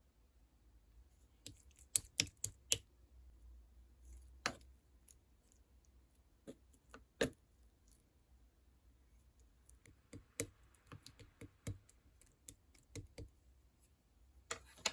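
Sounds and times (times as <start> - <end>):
sharp clicks and taps: 1.5 - 2.8.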